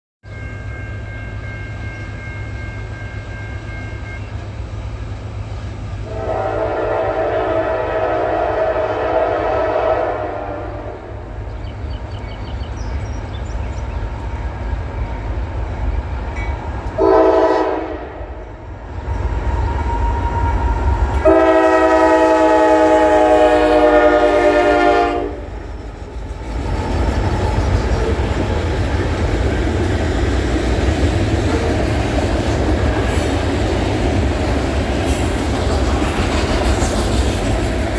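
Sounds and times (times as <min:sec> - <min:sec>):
train rumble: 0:00.2 - 0:37.9
locomotive air horn blasts: 0:06.0 - 0:11.2, 0:17.0 - 0:18.5, 0:19.8 - 0:25.5, 0:31.4 - 0:32.1.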